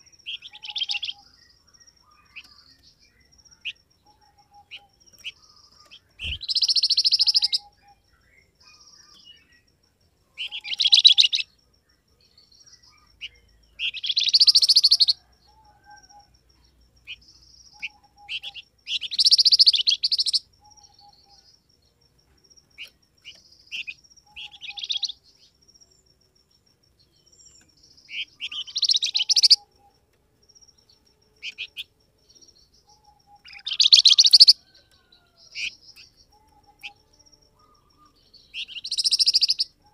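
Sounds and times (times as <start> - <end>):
songbird singing high-pitched bursts: 0.0 - 11.6, 12.5 - 16.4, 17.0 - 21.6, 22.6 - 26.0, 27.0 - 30.1, 30.7 - 39.9
soft short bird chirps: 3.6 - 7.7, 33.0 - 35.8, 37.6 - 39.9.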